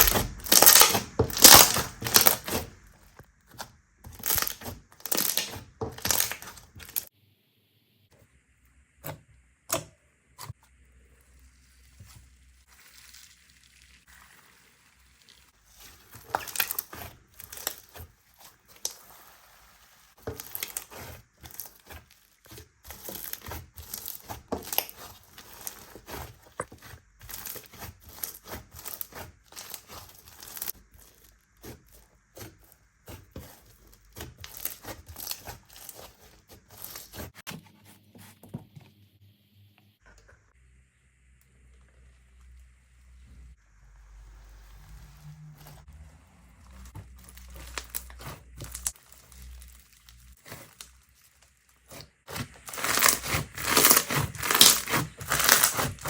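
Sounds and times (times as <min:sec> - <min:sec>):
slime squeezed with sticky crackles: 0:00.0 - 0:07.1, 0:11.5 - 0:37.4, 0:44.6 - 0:56.0.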